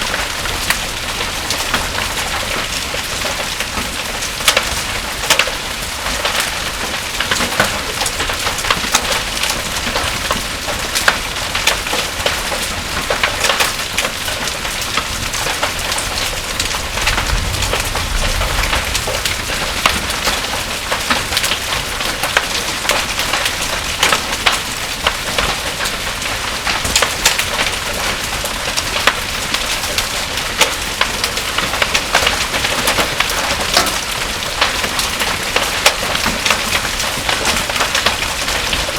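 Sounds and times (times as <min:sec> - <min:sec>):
heavy rain pouring: 0:00.0 - 0:38.9
low rumble of thunder: 0:15.4 - 0:23.4.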